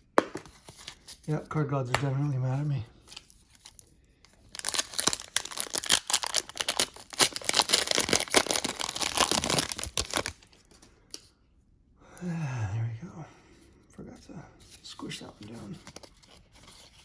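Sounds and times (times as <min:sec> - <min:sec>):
card pack wrapper tearing: 0:03.1 - 0:10.6.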